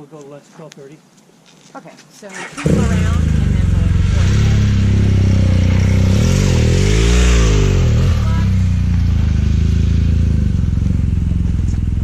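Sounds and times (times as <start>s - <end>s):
motorcycle engine revving: 2.3s - 12.0s
motorcycle engine idling: 2.6s - 12.0s.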